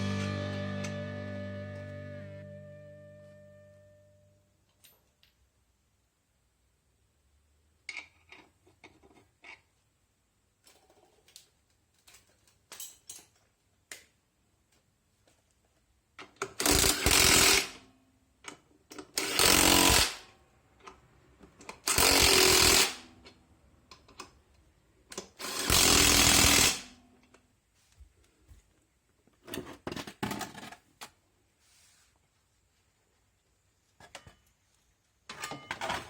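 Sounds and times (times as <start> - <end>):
tools clicking and clattering: 10.6 - 13.6
power impact tool bursts: 16.6 - 17.8, 19.2 - 20.3, 21.9 - 23.0, 25.4 - 26.9.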